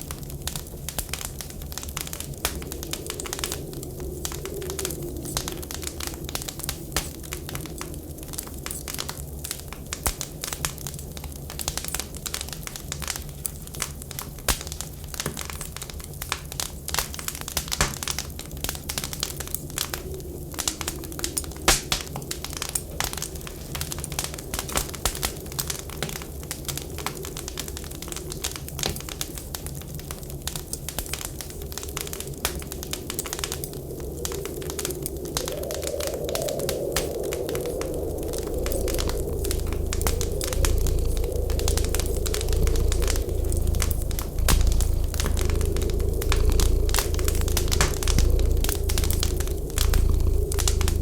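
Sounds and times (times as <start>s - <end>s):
wood fire crackling: 0.0s - 51.0s
faint whistle of wind: 1.6s - 9.2s, 31.4s - 51.0s
low rumble: 33.3s - 51.0s.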